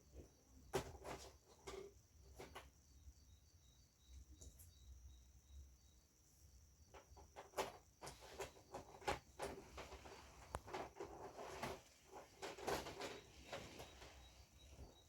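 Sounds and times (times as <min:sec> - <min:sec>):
faint clicks and taps: 0:06.9 - 0:11.8
rustling of parts: 0:07.0 - 0:14.9.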